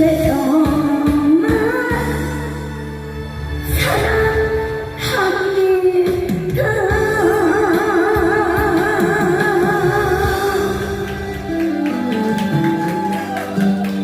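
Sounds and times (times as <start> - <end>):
person singing with vibrato: 3.7 - 14.0
backing band track: 8.6 - 14.0.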